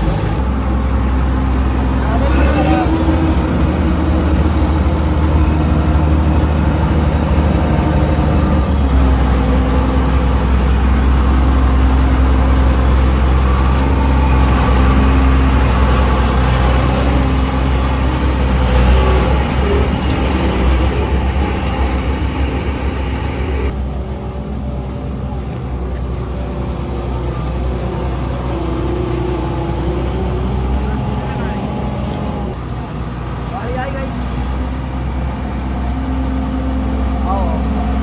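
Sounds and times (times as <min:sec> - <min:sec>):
heavy diesel engine under load: 0:00.0 - 0:38.0.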